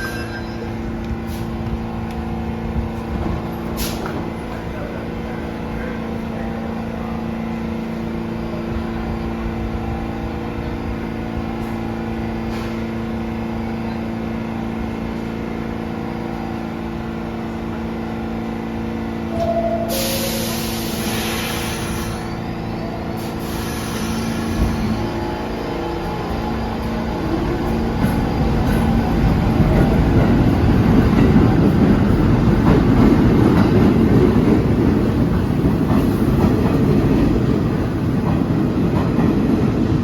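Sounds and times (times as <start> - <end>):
subway train electrical hum: 0.0 - 40.0
air brakes hissing: 3.6 - 4.2, 19.8 - 25.0.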